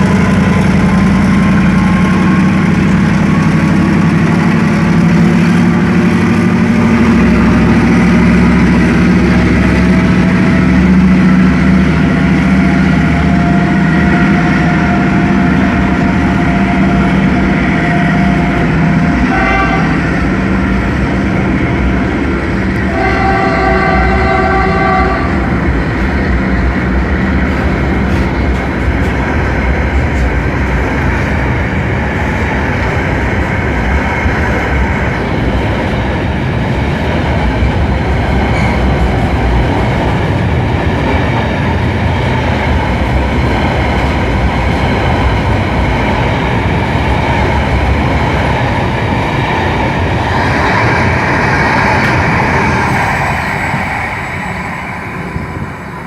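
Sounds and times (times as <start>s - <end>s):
freight train wheels rumbling on rails: 0.0s - 56.0s
high ringing of train wheels: 38.0s - 56.0s.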